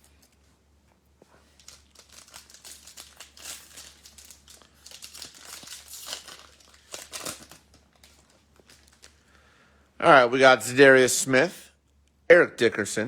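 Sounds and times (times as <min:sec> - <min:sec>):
foil wrapper crinkling and tearing: 0:01.4 - 0:09.3.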